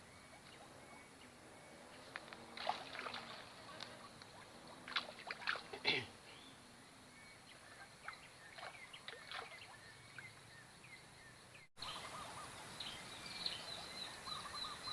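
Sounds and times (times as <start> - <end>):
faint steady background noise: 0.0 - 14.9
water sloshing and splashing: 2.2 - 6.0, 8.0 - 9.8.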